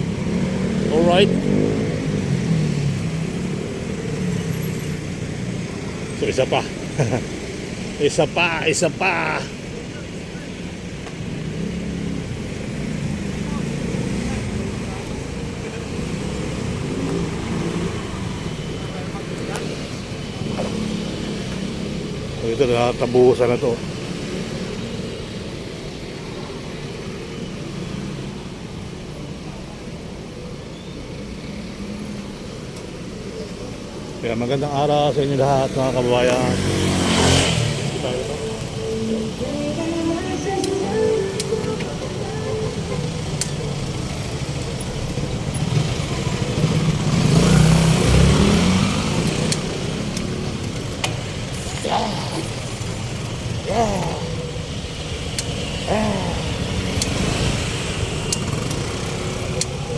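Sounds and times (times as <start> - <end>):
passing vehicles: 0.0 - 59.9
street traffic: 0.0 - 59.9
vehicle engine passing close: 34.8 - 59.9.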